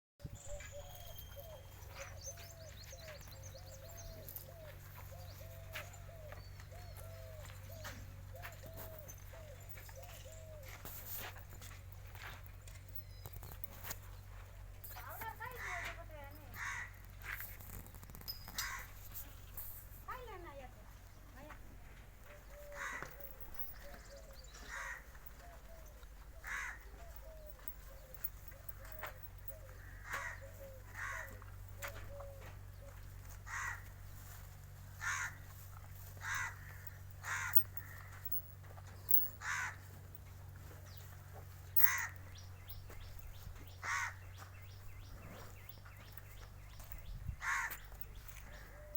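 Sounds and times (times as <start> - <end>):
bird calling low arched notes: 0.2 - 10.8
crow cawing: 15.4 - 17.0, 22.6 - 25.6, 26.4 - 27.3, 29.7 - 31.4, 33.4 - 34.0, 35.0 - 35.5, 36.2 - 38.3, 39.4 - 40.0, 41.8 - 42.2, 43.8 - 44.3, 47.4 - 47.9.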